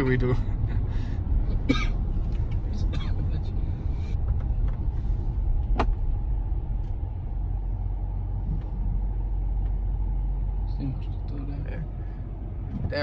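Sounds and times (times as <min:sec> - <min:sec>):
pickup engine and road rumble: 0:00.0 - 0:13.0.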